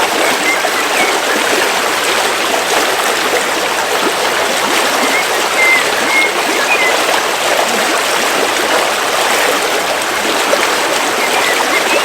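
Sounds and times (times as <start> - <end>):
river water flowing: 0.0 - 12.0
bird chirping: 5.0 - 7.1, 11.1 - 12.0.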